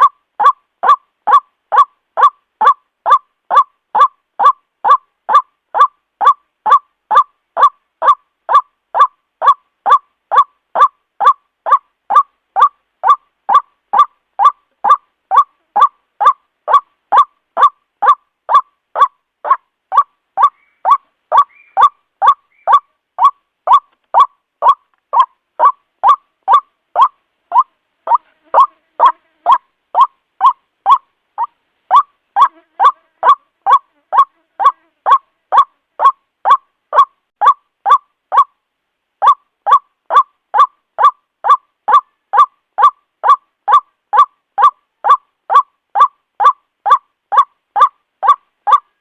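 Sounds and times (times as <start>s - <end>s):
waterhen repeated call: 0.0s - 38.6s, 39.2s - 49.0s.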